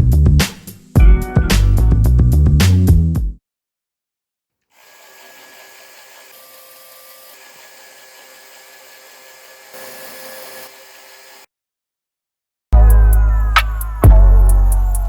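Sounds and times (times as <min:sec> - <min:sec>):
small electric motor whirring: 0:04.7 - 0:11.5.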